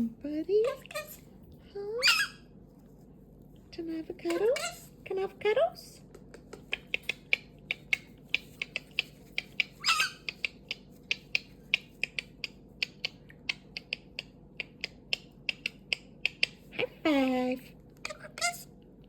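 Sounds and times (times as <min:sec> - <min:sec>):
cockatoo clicking: 0:06.0 - 0:16.7
cockatoo harsh squawk: 0:09.8 - 0:10.3.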